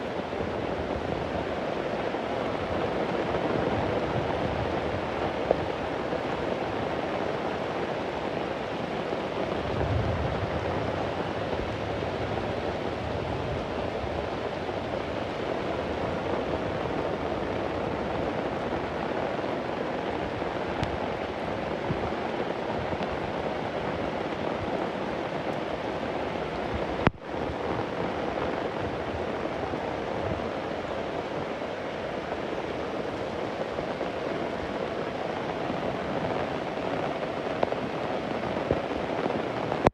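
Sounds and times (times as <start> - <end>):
heavy rain: 0.0 - 39.9
distant thunder rumble: 9.4 - 17.3.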